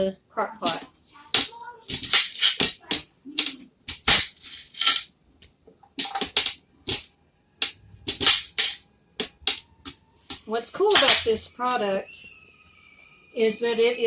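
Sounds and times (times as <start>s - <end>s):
potatoes knocking against plastic: 5.4s - 8.5s.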